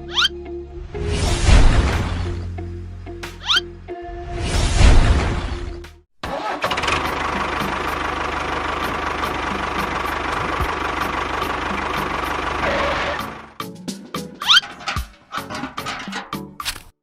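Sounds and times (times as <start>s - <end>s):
engine running steadily: 6.5s - 13.6s.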